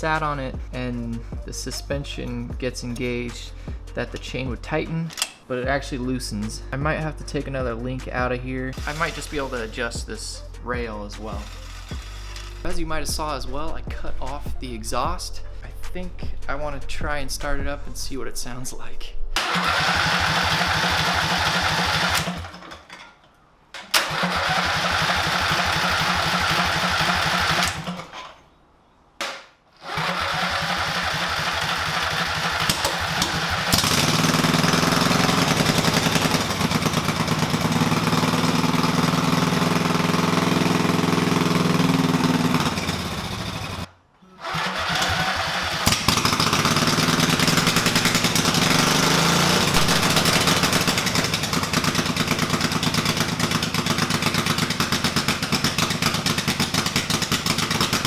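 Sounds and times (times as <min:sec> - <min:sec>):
unmuffled motorcycle engine running: 0:06.8 - 0:10.1, 0:19.6 - 0:22.4, 0:30.0 - 0:43.9, 0:44.5 - 0:58.0.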